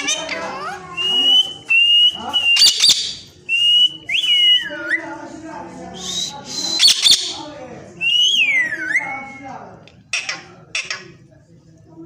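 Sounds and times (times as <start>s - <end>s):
parrot squawks: 0.0s - 3.3s, 6.7s - 7.4s
parrot whistling: 0.0s - 5.0s, 6.0s - 7.4s.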